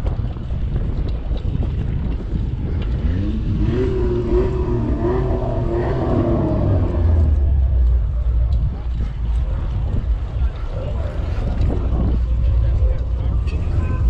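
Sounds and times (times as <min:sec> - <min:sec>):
wind on microphone: 0:00.0 - 0:14.0
car engine revving: 0:02.7 - 0:10.0.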